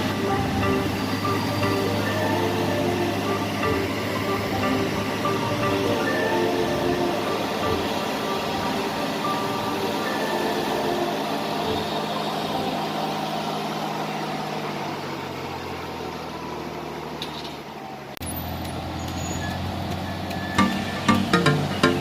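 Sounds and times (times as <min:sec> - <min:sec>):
plucked music notes: 0:00.0 - 0:13.0, 0:20.6 - 0:22.0
heavy machine engine running: 0:00.0 - 0:17.1.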